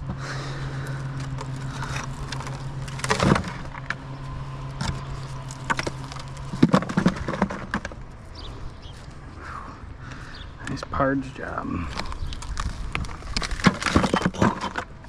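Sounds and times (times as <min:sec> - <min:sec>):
steady low hum: 0:00.0 - 0:15.0
bricks knocking and clattering: 0:04.8 - 0:08.0, 0:11.9 - 0:15.0.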